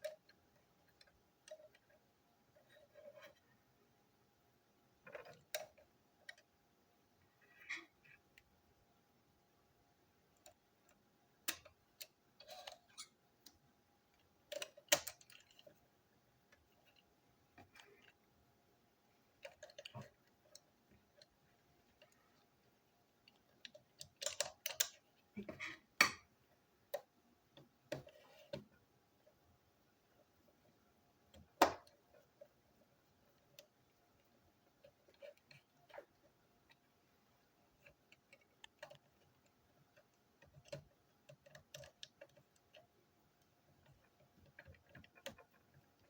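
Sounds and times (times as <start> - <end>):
plastic toy parts clicking: 14.2 - 15.8, 23.2 - 25.1, 37.8 - 42.8.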